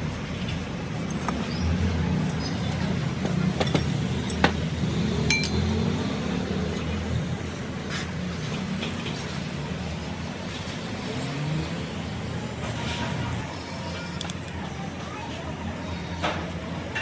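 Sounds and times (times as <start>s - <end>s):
sharp clinks: 5.3s - 5.7s.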